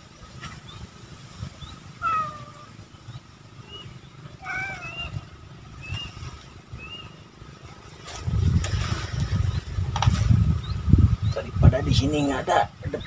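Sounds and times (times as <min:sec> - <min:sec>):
drawn-out animal call: 0:01.9 - 0:06.0
animal chirps: 0:02.0 - 0:02.7, 0:03.6 - 0:06.2.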